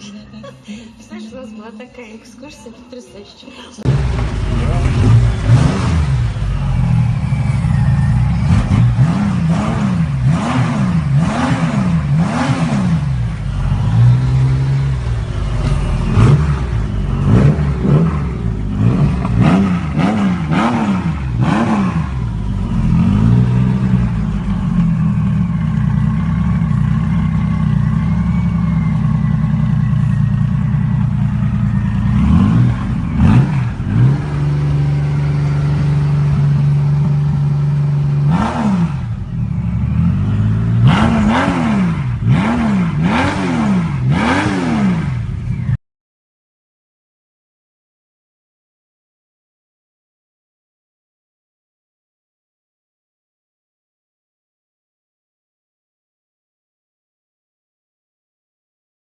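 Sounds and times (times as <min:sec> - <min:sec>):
motorcycle engine revving and idling: 0:03.8 - 0:45.8.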